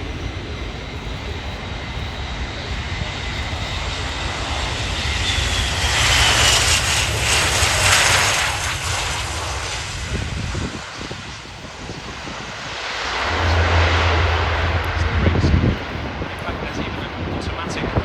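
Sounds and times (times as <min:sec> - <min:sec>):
turboprop aircraft engines: 0:00.0 - 0:18.0
high engine whine: 0:12.2 - 0:17.3.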